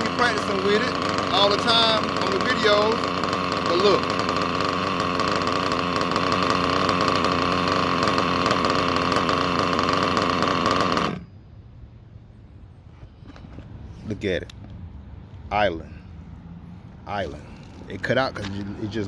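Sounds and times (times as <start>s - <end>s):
small nitro engine idling: 0.0s - 11.5s.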